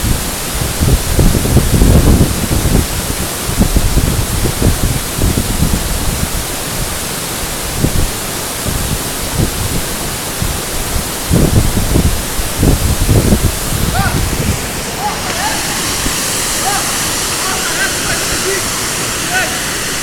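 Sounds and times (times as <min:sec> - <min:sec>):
waterfall rushing: 0:00.0 - 0:20.0
low rumbles: 0:10.4 - 0:20.0.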